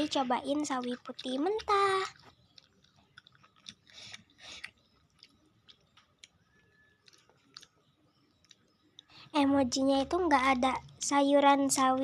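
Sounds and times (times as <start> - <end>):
cabbage being chewed: 0.0 - 9.2.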